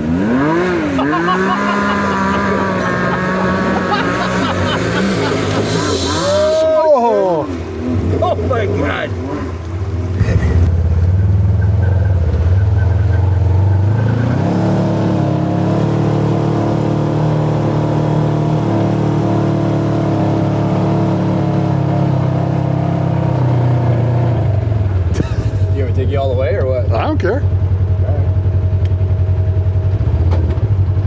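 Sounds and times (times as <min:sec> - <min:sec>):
utility vehicle engine running: 0:00.0 - 0:31.0.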